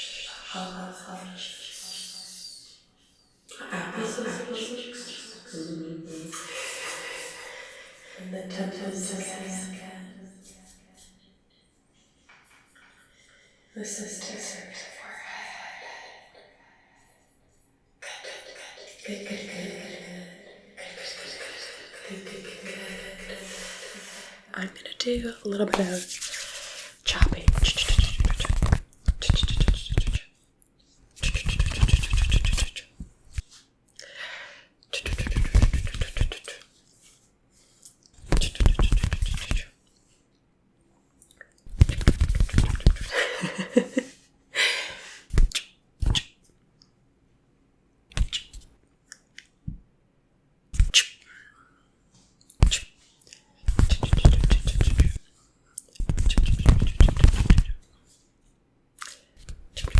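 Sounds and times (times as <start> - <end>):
rapid scratchy tapping: 25.8 - 30.2, 31.2 - 32.9, 35.0 - 36.5, 38.2 - 39.7, 41.7 - 43.1, 53.7 - 55.2, 56.0 - 57.8.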